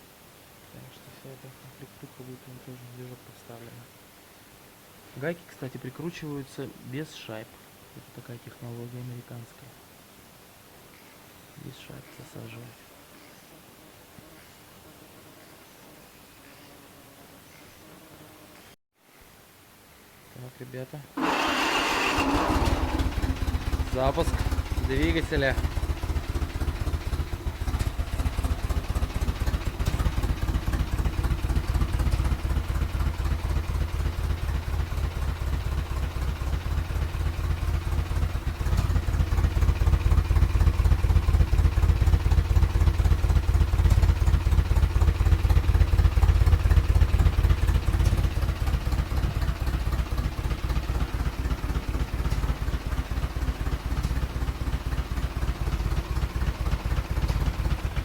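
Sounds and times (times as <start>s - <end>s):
engine running with pulsing exhaust: 21.2s - 58.0s.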